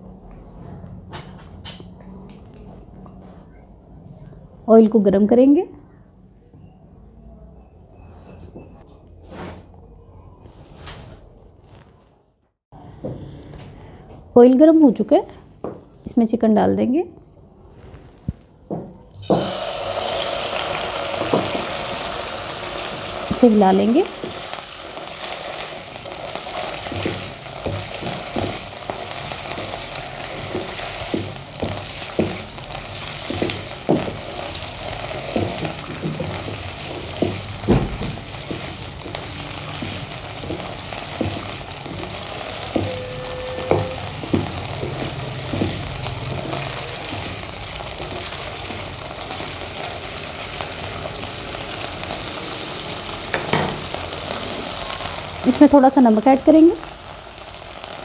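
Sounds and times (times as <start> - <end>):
chicken sizzling in hot oil: 19.2 - 58.0
wooden spatula scraping pan: 24.1 - 50.2.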